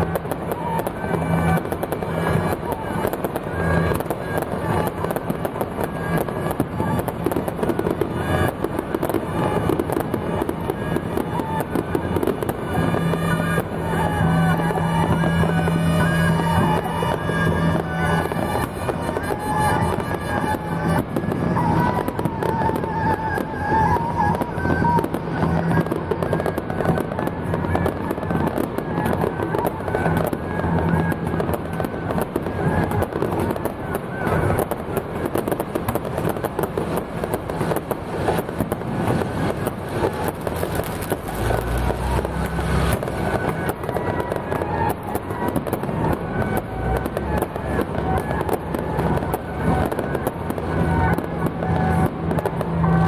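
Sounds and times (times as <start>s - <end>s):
festival music: 0.0s - 33.3s
firecrackers crackling: 0.0s - 53.0s.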